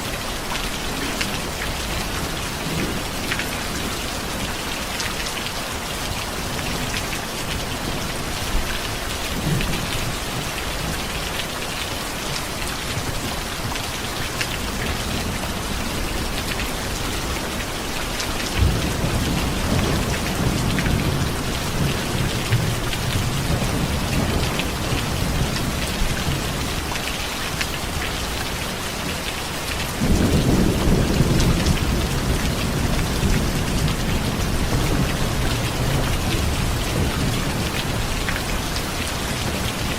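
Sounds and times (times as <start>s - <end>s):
rain pattering: 0.0s - 39.9s
thunder rumbling: 14.5s - 27.1s, 30.0s - 39.9s.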